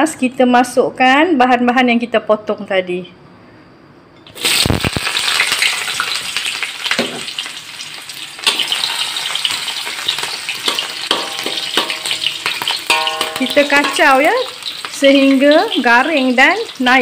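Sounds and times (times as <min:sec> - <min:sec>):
aromatics sizzling in hot oil: 0:04.3 - 0:17.0
spatula knocking against pan: 0:10.7 - 0:14.4.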